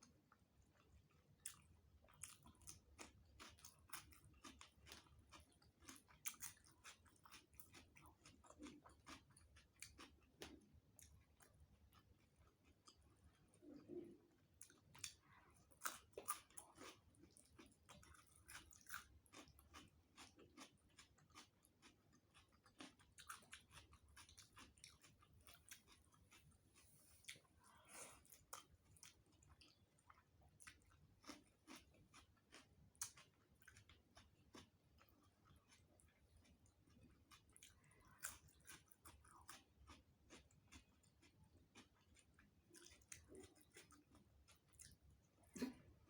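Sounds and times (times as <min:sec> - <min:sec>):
food crunch: 0:01.4 - 0:10.6.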